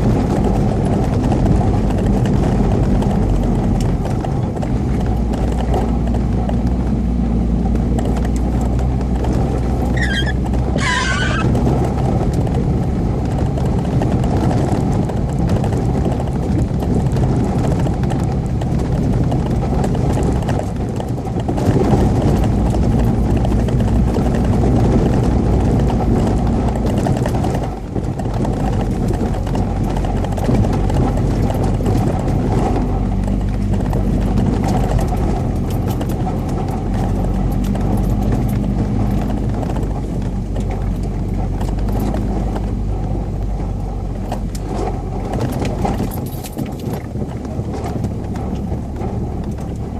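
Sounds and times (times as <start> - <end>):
car engine under load: 0.0 - 49.9
falling squeal: 9.9 - 11.5.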